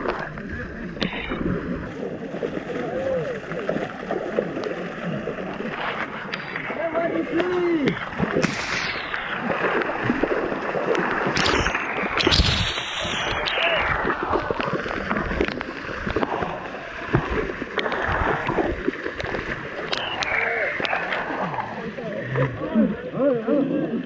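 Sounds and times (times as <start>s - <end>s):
rushing river water: 0.0s - 22.2s
water splashing: 0.0s - 22.6s.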